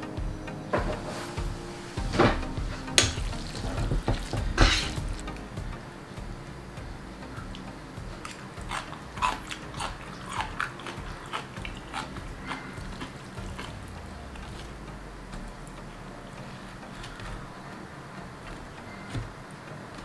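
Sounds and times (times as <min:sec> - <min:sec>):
wet mouth clicks and smacks chewing: 0:07.6 - 0:14.8.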